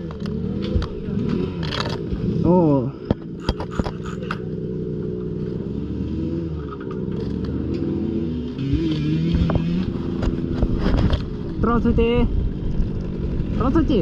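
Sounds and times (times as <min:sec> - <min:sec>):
sharp clicks and clatter: 0:00.0 - 0:02.2, 0:03.0 - 0:04.5, 0:06.6 - 0:07.9, 0:08.7 - 0:11.8
dirt bike engine running: 0:00.0 - 0:14.0.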